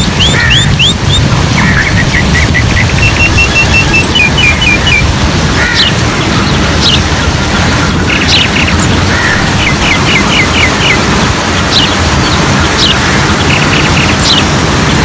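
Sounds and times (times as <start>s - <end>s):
birds whistling and chirping: 0.0s - 15.0s
steady low rumble: 0.0s - 15.0s.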